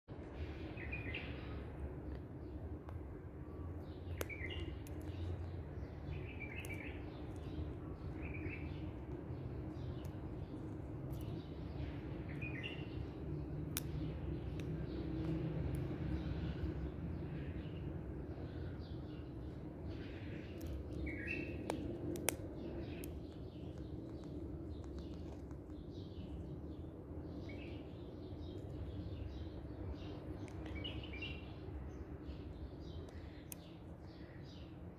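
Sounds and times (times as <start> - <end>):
low background hum: 0.1 - 34.9
sharp clicks: 20.5 - 25.9.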